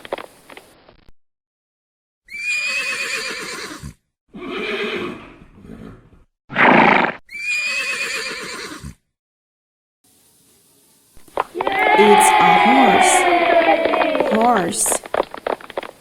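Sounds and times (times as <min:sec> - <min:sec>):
horse neighing: 0:02.3 - 0:05.9, 0:07.3 - 0:09.0.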